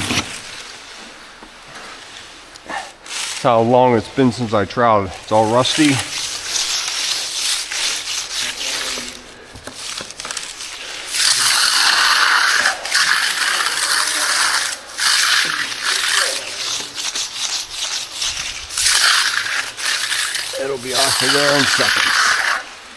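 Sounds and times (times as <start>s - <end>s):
trowel scraping concrete: 5.0s - 22.8s.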